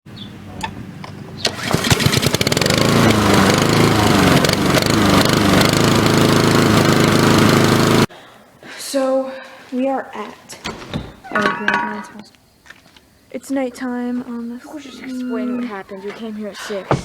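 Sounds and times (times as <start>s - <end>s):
lawn mower engine revving: 0.1s - 8.1s.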